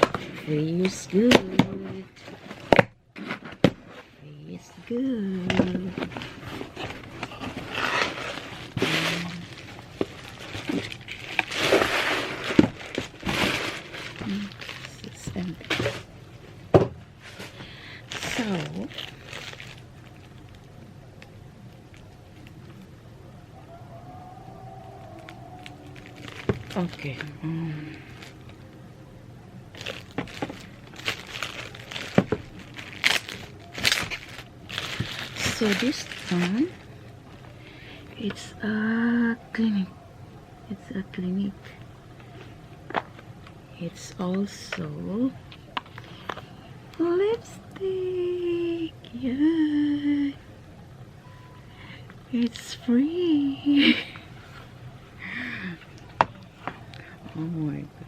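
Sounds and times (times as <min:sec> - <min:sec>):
packaging rustling: 0:05.4 - 0:16.5, 0:17.2 - 0:22.9, 0:23.6 - 0:28.8, 0:29.7 - 0:38.5.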